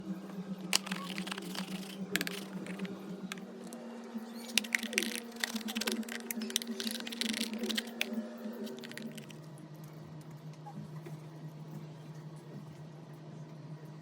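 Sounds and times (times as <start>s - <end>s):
small hard objects clicking: 0.7s - 3.8s, 4.4s - 9.3s.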